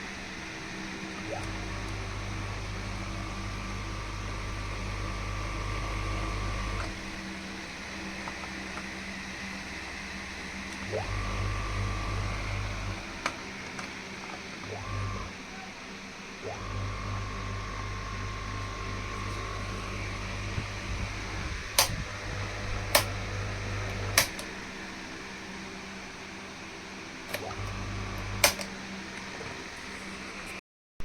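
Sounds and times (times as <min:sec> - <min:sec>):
electric fan motor humming: 0:00.0 - 0:30.6
fan spinning up whine: 0:00.0 - 0:30.6
fan switch clicks: 0:20.5 - 0:23.3, 0:23.9 - 0:24.6, 0:28.4 - 0:28.8.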